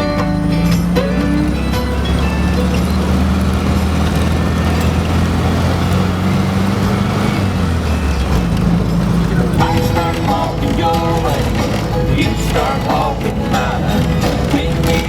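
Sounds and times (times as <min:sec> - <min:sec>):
road noise: 0:00.0 - 0:15.0
vehicle engine hum: 0:00.0 - 0:15.0.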